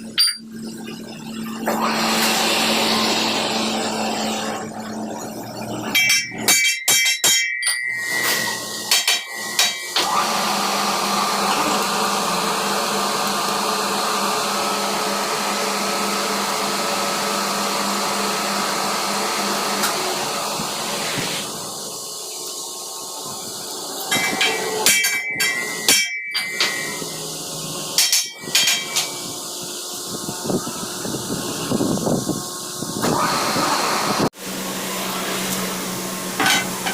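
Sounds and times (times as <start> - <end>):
powered machine running: 1.3 - 5.9, 9.5 - 22.3, 29.0 - 36.9
hammer striking metal: 5.9 - 10.1, 24.1 - 27.2, 28.0 - 29.3.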